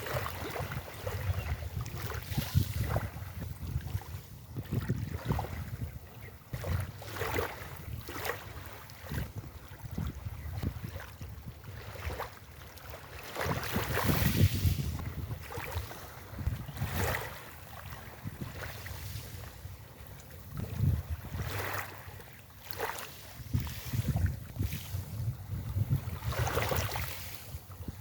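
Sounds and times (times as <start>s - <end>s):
wind buffeting microphone: 0.0s - 12.3s, 13.2s - 22.1s, 22.7s - 28.0s
sea waves washing onto beach: 13.0s - 28.0s.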